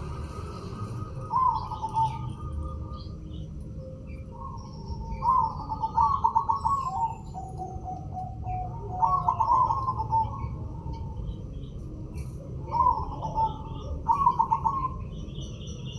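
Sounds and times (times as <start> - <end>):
small birds chirping: 0.0 - 15.9
dove trilled cooing: 1.2 - 3.1, 4.1 - 11.4, 12.5 - 15.9.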